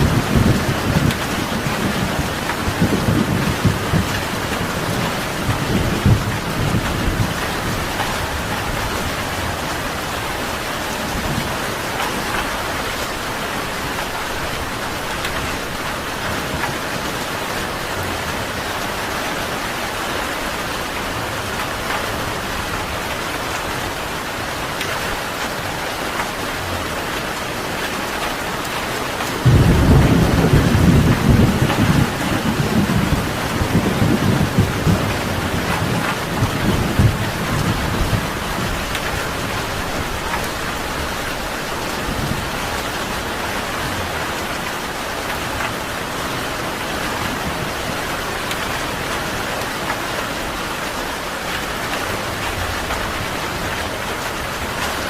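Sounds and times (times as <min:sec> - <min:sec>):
thunder rumbling: 0:00.0 - 0:12.9, 0:29.4 - 0:45.6
steady rain: 0:00.0 - 0:55.0.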